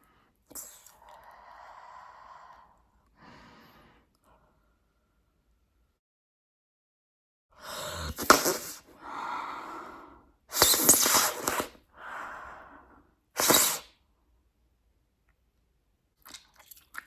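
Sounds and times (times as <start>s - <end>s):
blowing and sucking through gum: 0.5s - 1.6s, 7.8s - 8.9s, 10.5s - 11.8s, 13.4s - 13.9s.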